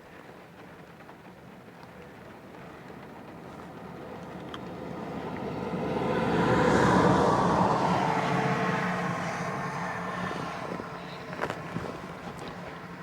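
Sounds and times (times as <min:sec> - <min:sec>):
heavy rain on a car: 0:00.0 - 0:13.0.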